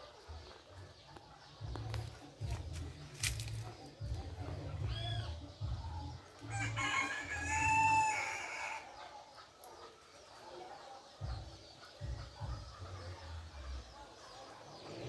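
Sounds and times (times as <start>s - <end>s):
rooster crowing: 6.5s - 9.0s.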